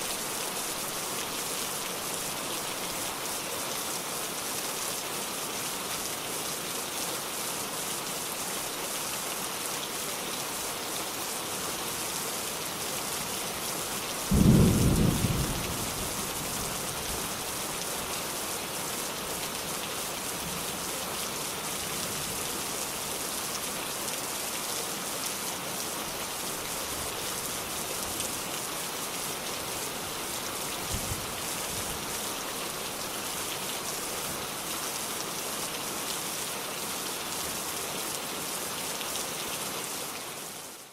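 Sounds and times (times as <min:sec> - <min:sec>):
steady rain falling: 0:00.0 - 0:40.9
low thunder clap: 0:14.3 - 0:16.1.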